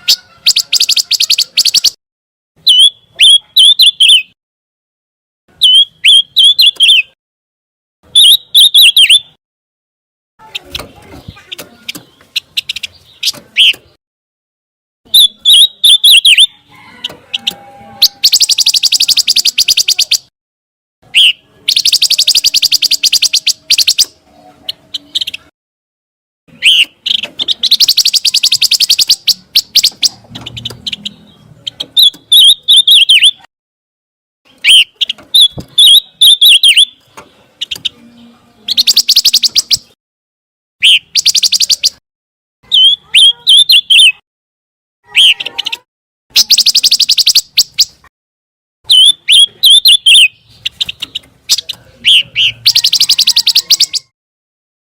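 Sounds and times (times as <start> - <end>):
bird song with trills and whistles: 0.0 - 2.0, 2.6 - 4.4, 5.5 - 7.2, 8.1 - 9.4, 10.4 - 14.0, 15.1 - 20.3, 21.1 - 25.5, 26.5 - 33.5, 34.5 - 40.0, 40.8 - 42.0, 42.6 - 44.2, 45.1 - 48.1, 48.9 - 54.1.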